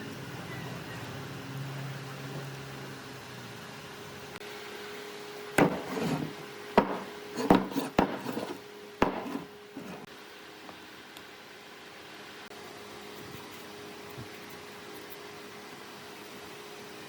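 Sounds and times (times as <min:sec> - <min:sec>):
wood being struck: 0:05.6 - 0:10.1.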